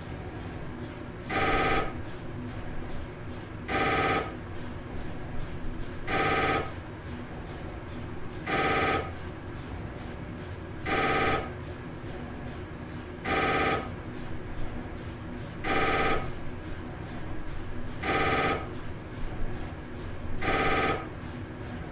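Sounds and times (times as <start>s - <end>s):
telephone ringing trill: 1.3s - 2.0s, 3.7s - 4.4s, 6.1s - 6.8s, 8.4s - 9.1s, 10.9s - 11.5s, 13.2s - 14.0s, 15.6s - 16.3s, 18.0s - 18.7s, 20.4s - 21.1s.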